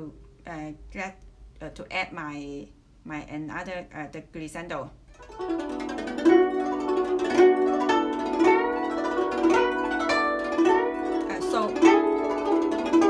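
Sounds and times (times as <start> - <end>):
plucked zither notes: 5.1 - 13.0.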